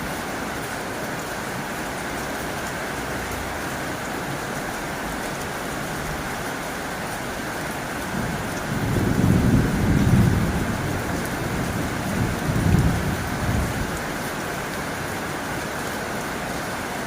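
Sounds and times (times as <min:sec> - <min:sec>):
heavy rain on a tin roof: 0:00.0 - 0:17.0
thunder rumbling: 0:08.1 - 0:14.1.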